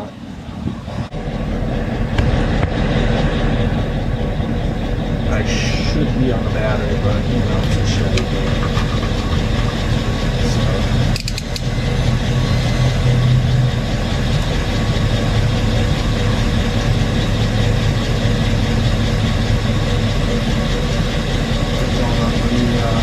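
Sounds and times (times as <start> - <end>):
engine idling: 0.0 - 23.0
sharp clicks: 11.1 - 11.7.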